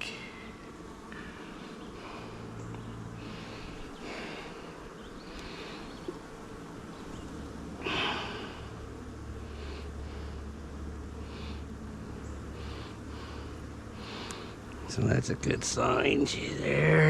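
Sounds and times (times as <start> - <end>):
bees buzzing: 0.0 - 17.0
breathy puffs of air: 0.1 - 6.2, 7.8 - 14.9.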